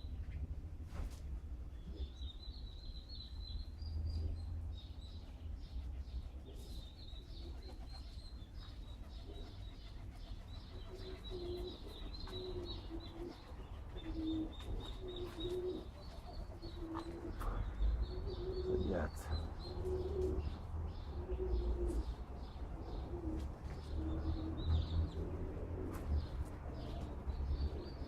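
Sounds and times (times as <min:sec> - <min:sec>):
small birds chirping: 0:01.4 - 0:28.0
pigeon cooing: 0:05.6 - 0:28.0.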